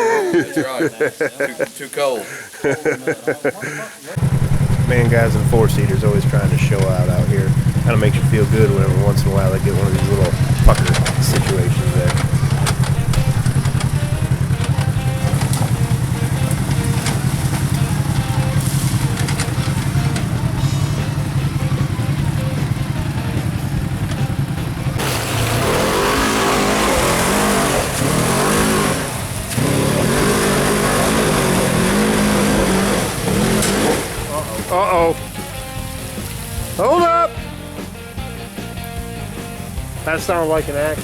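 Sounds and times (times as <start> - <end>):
utility vehicle engine revving: 4.2 - 36.8.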